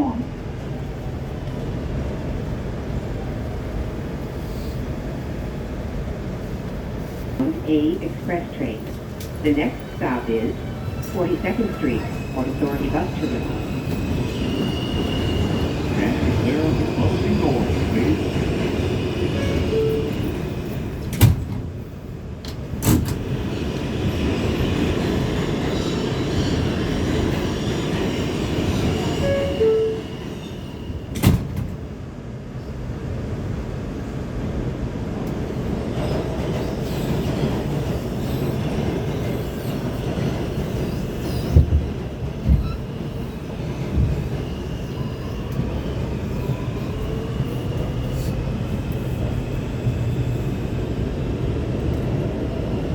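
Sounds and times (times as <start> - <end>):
subway train rumbling: 0.0 - 52.9.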